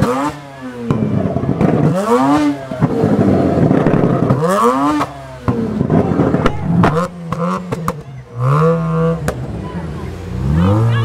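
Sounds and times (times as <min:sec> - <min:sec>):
exhaust pops and bangs: 0:00.0 - 0:08.2
rotary engine revving: 0:00.0 - 0:11.0.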